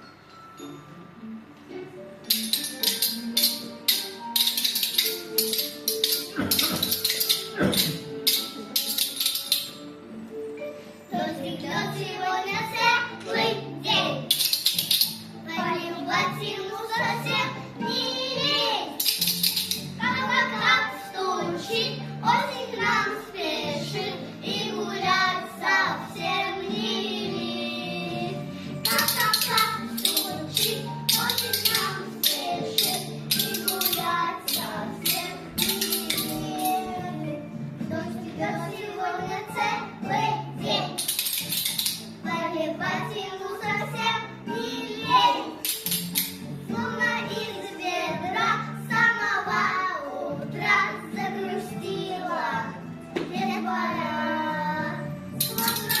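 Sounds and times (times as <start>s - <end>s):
musical accompaniment with low notes: 0.0s - 56.0s
child singing: 11.1s - 19.3s, 20.0s - 41.1s, 42.2s - 45.8s, 46.7s - 56.0s.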